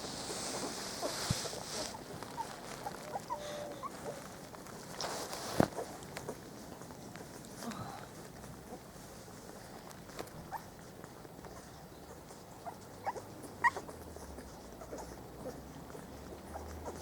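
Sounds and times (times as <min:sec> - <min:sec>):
puppies squeaking and whimpering: 0:00.4 - 0:04.8, 0:08.6 - 0:17.0.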